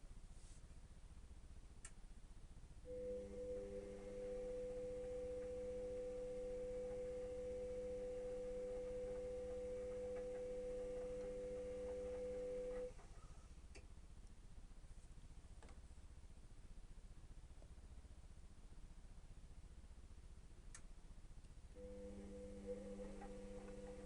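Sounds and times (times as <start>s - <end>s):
washing machine electrical hum: 0.0s - 24.0s.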